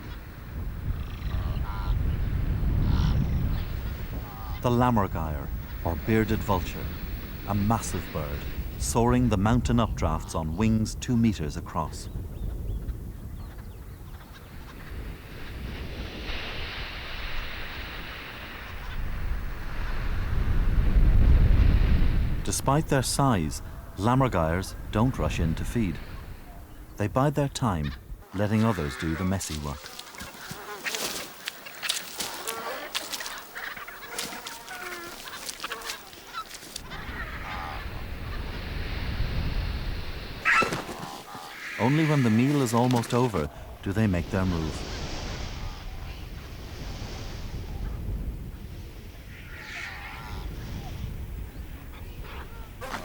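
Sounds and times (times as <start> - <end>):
wind rushing and gusting: 0.0 - 28.4, 29.6 - 53.0
birds squabbling with honking calls: 27.7 - 38.6, 40.4 - 43.6.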